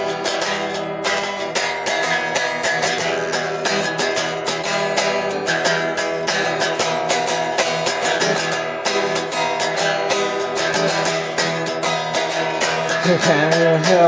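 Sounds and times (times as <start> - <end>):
guitar strumming chords: 0.0 - 14.0.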